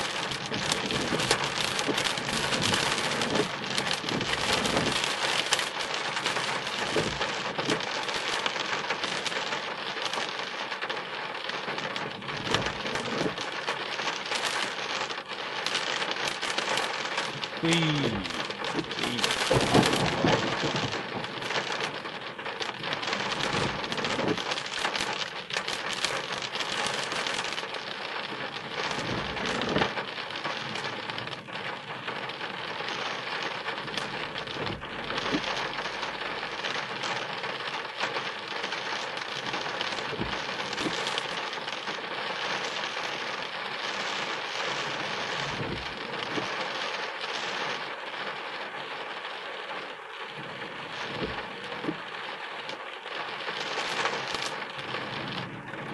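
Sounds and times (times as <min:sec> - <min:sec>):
heavy rain on car roof: 0:00.0 - 0:55.9
thunder rumble: 0:16.5 - 0:25.0.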